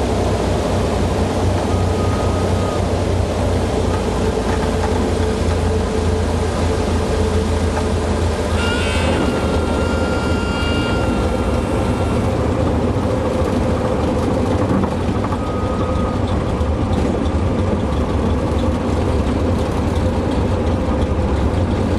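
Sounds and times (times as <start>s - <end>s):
airplane engine drone: 0.0s - 21.9s
stall warning horn: 6.8s - 13.2s.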